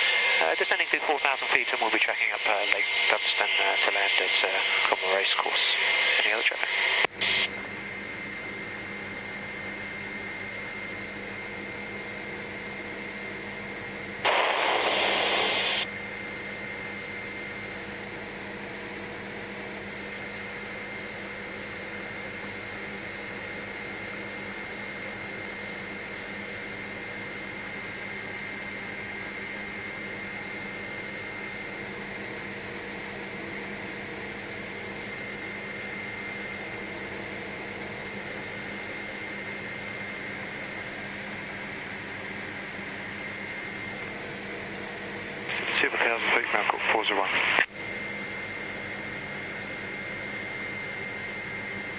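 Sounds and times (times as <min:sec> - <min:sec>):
helicopter engine and rotor hum: 0:00.0 - 0:51.9.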